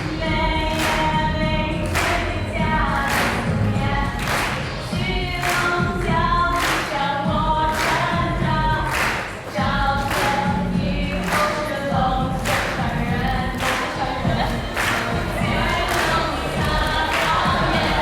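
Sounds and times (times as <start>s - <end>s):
group of voices singing: 0.0s - 18.0s
sharp percussive clap: 0.6s - 1.2s, 1.8s - 7.1s, 7.7s - 8.2s, 8.8s - 10.5s, 11.1s - 11.6s.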